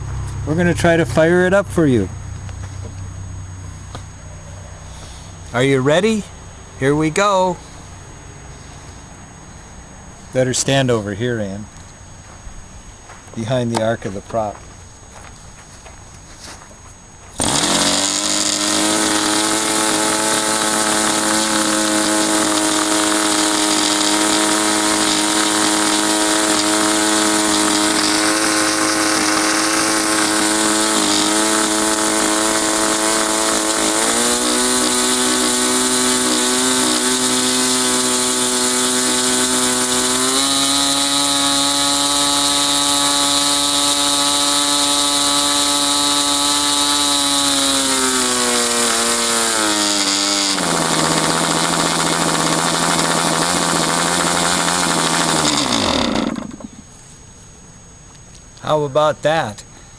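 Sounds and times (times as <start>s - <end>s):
model airplane engine running: 17.4s - 56.8s.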